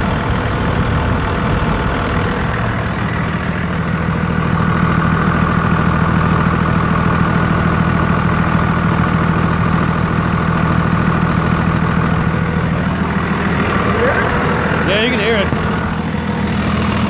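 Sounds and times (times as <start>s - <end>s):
diesel engine clattering: 0.0s - 17.0s
engine knocking: 0.0s - 17.0s.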